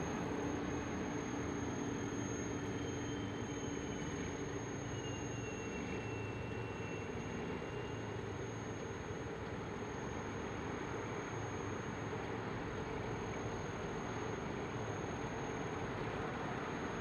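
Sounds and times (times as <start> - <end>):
train rumbling past: 0.0 - 9.2
faint high whine: 0.0 - 17.0.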